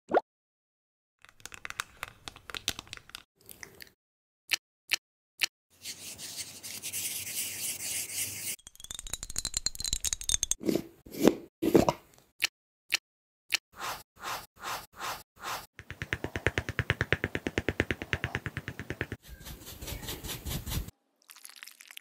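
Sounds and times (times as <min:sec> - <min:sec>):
makeup brush rubbing: 0:05.8 - 0:08.6, 0:18.7 - 0:20.9
makeup sponge patting: 0:15.8 - 0:20.9.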